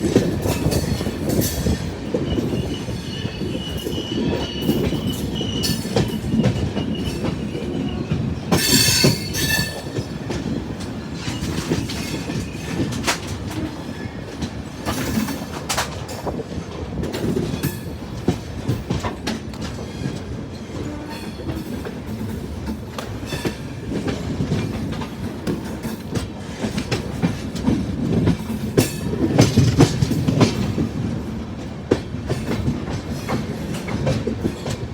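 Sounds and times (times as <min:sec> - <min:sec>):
train rumbling along track: 0:00.0 - 0:34.9
high wheel squeal: 0:02.3 - 0:10.1
wheels clattering over rail joints: 0:04.7 - 0:13.6.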